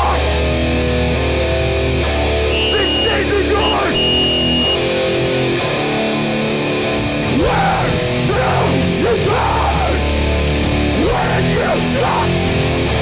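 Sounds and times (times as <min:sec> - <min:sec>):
punk band playing: 0:00.0 - 0:13.0
sliding guitar notes: 0:00.0 - 0:13.0.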